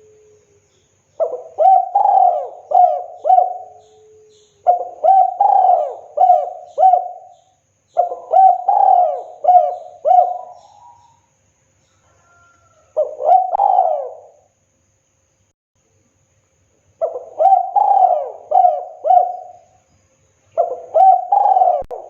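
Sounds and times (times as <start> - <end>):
dove cooing: 1.2 - 11.2, 12.2 - 14.5, 17.0 - 19.8, 20.6 - 22.0.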